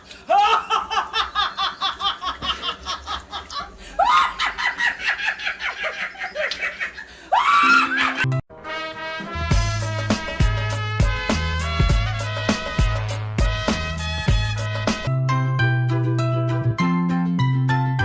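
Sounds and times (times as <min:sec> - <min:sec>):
person laughing hard: 0:00.2 - 0:08.4
music with steady beat: 0:09.0 - 0:15.1.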